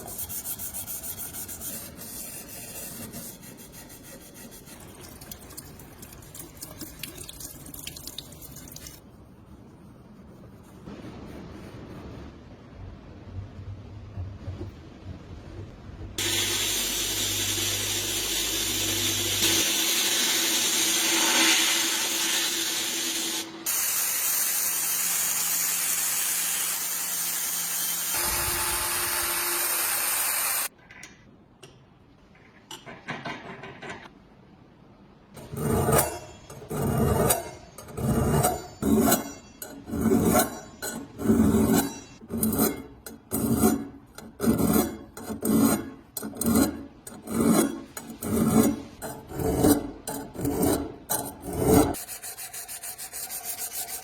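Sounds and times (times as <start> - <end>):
workshop tool hissing: 16.2 - 30.7
hand file rasping: 51.4 - 54.0.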